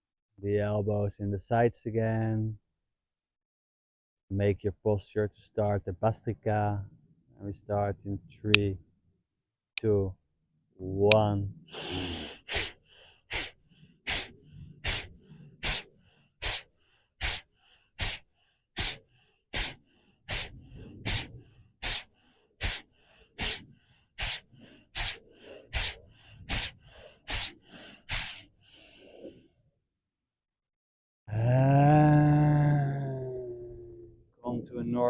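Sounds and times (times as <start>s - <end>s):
rapid forceful nose breathing: 11.7s - 29.4s.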